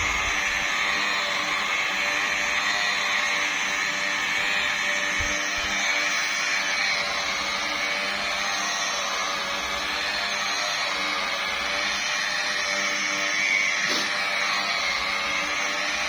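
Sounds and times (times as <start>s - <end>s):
car polishing machine whirring: 0.0s - 16.0s.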